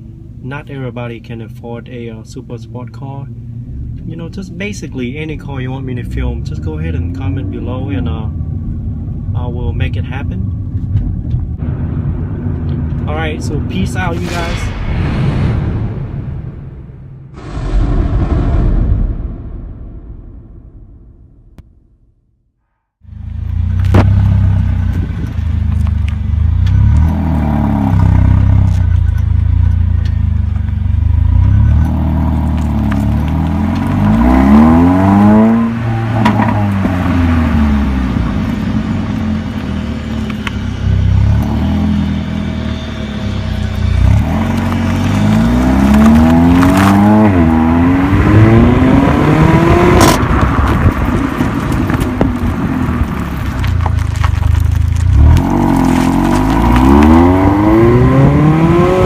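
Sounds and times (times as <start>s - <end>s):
car engine revving: 23.1s - 59.0s.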